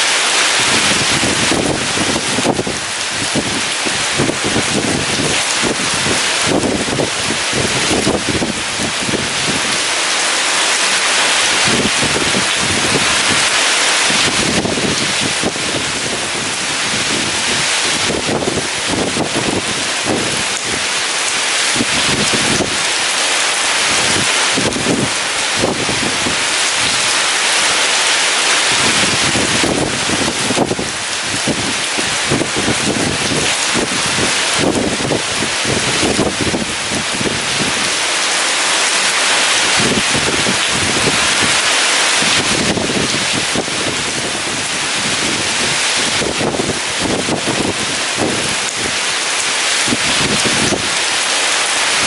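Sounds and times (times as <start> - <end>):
heavy rain hissing: 0.0 - 52.0
strong wind gusting: 0.0 - 52.0.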